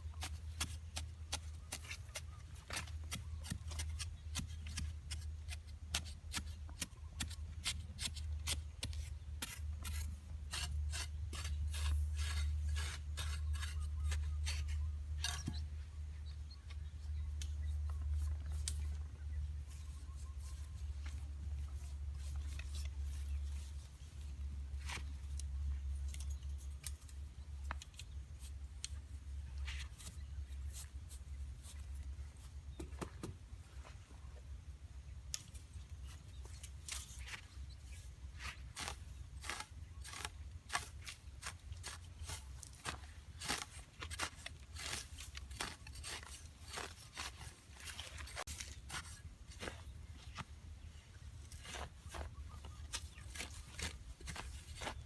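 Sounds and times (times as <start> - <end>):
sharp clicks and snips of hand work: 28.8 - 29.0, 35.3 - 35.6.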